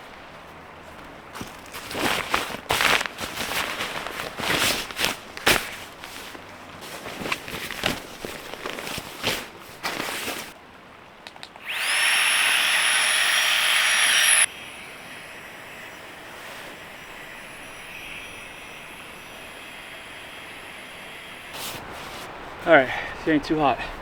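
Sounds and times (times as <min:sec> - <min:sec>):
rustling and handling noises: 0:00.9 - 0:10.6
small electric motor whirring: 0:11.6 - 0:22.3.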